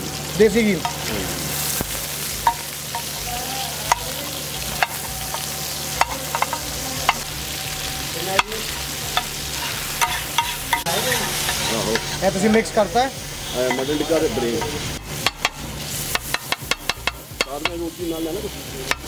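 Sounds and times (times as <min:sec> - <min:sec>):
meat sizzling on a griddle: 0:00.0 - 0:19.0
spatula clacking on griddle: 0:00.8 - 0:01.1, 0:02.4 - 0:12.8, 0:13.6 - 0:18.0.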